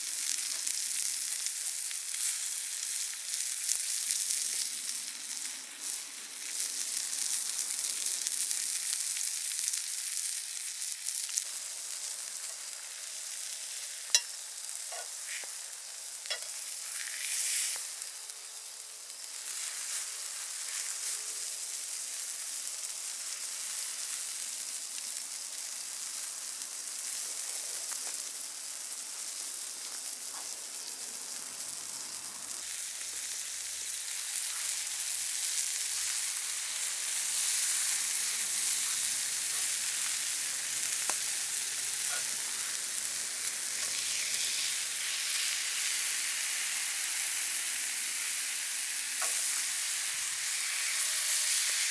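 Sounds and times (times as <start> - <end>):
steak sizzling over fire: 0.0 - 51.9
fire popping: 29.3 - 45.2.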